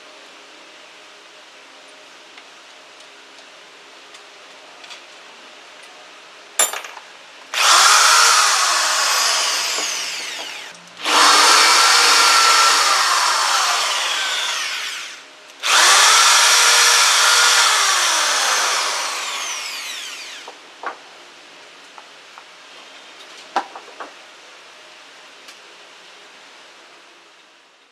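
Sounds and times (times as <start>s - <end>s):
impact drill running: 7.6s - 20.6s.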